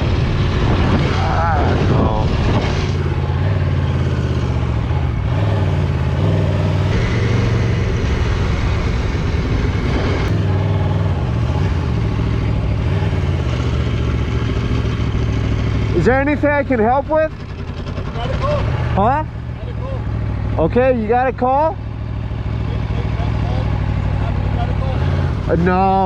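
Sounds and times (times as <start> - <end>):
motorcycle engine idling: 12.0 - 26.0.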